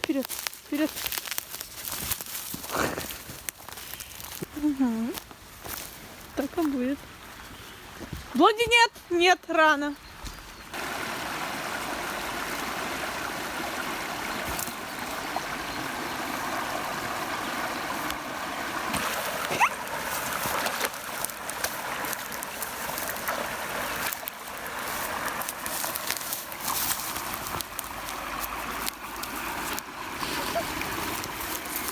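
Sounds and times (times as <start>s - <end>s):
river water rushing: 10.8s - 31.9s
small splashes and knocks: 14.2s - 15.4s, 17.8s - 31.9s.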